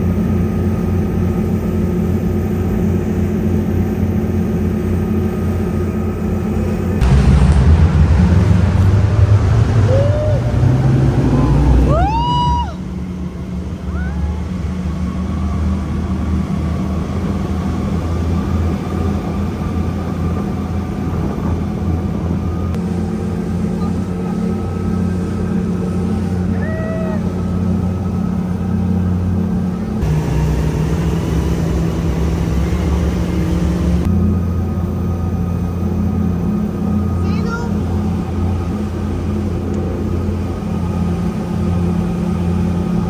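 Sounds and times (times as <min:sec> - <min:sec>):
speedboat engine rumbling: 0:05.5 - 0:34.1, 0:36.6 - 0:43.0
rising whoop: 0:07.0 - 0:13.1, 0:13.8 - 0:14.8.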